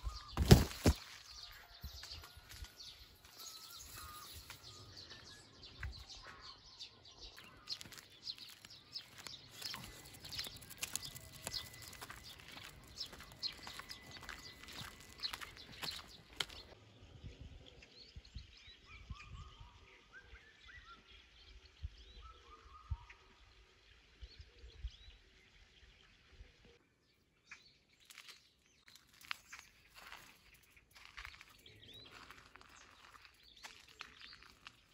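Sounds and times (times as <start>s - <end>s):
footsteps: 0.0s - 4.7s, 7.4s - 16.8s
birds chirping: 0.0s - 19.4s, 27.5s - 34.9s.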